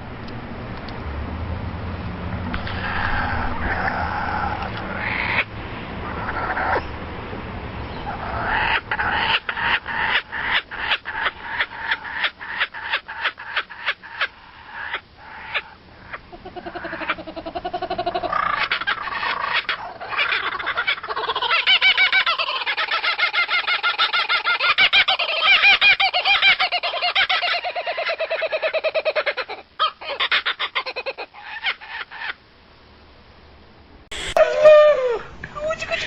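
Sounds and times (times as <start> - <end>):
animal calling in rapid pulses: 2.6 - 6.9, 8.0 - 32.4.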